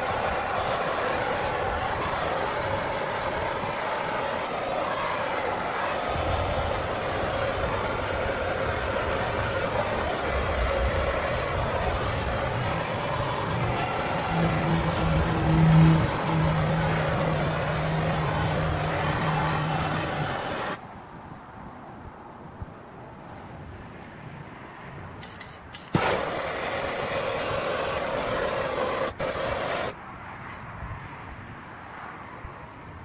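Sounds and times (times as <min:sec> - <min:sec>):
electric grinder running: 0:00.0 - 0:20.8, 0:25.9 - 0:30.0.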